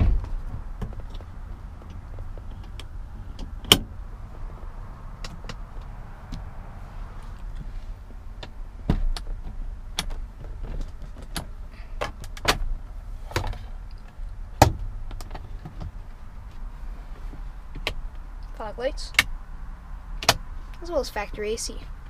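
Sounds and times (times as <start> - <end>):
handling clicks and knocks on car: 0.0 - 4.6, 5.2 - 6.5, 7.4 - 16.6, 17.7 - 18.2, 20.2 - 20.5
low steady rumble: 0.0 - 22.0.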